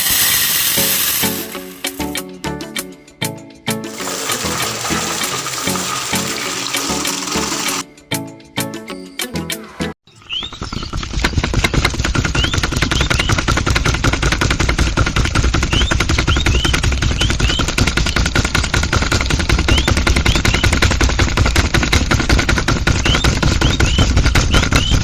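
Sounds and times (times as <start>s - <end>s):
small engine knocking: 3.9s - 7.8s, 10.2s - 25.0s.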